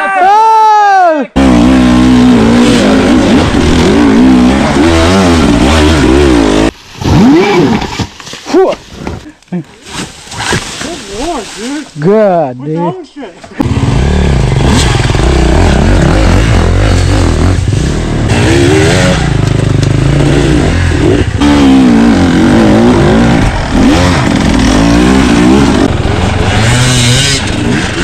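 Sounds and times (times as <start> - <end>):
two-stroke engine revving: 1.4 - 7.8, 13.6 - 28.0.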